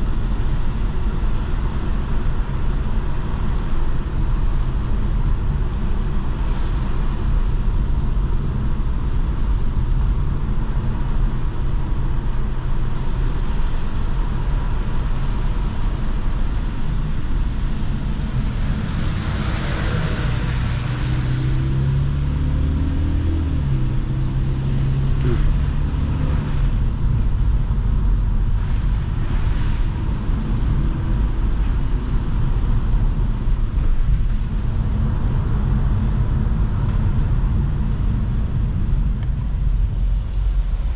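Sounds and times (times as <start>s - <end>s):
car engine and tyre rumble: 0.0s - 40.9s
rushing whoosh: 16.6s - 34.7s.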